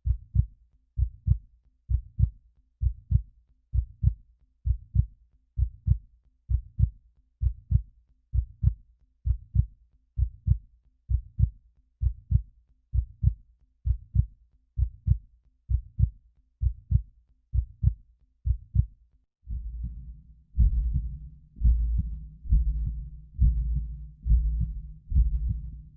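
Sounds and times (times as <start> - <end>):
heartbeat thumps: 13.0 - 17.0, 17.6 - 18.9, 19.5 - 25.9
low pulsing rumble: 19.5 - 25.9.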